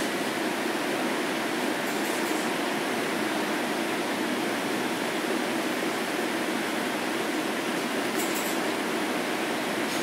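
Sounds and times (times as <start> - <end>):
train rolling on track: 0.0 - 2.7, 7.3 - 10.0.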